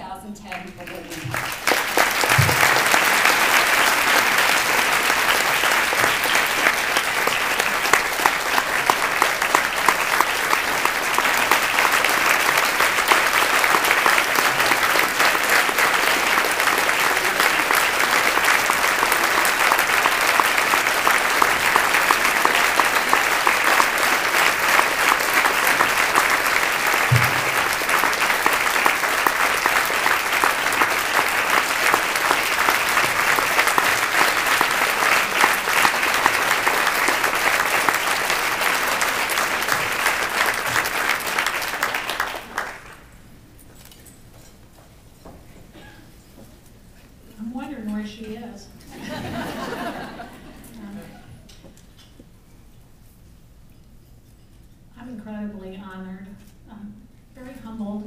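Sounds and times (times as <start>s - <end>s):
audience applauding: 0.5s - 43.3s, 49.0s - 51.4s.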